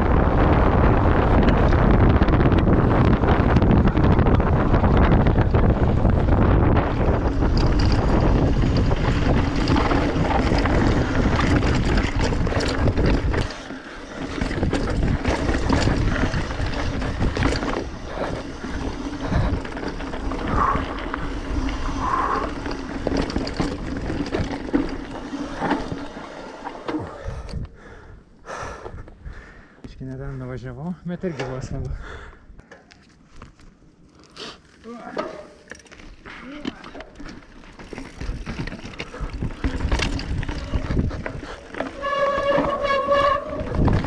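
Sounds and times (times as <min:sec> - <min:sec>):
wind buffeting microphone: 0:00.0 - 0:26.3, 0:37.8 - 0:44.0
bike clicks and knocks: 0:04.8 - 0:27.7, 0:35.0 - 0:44.0.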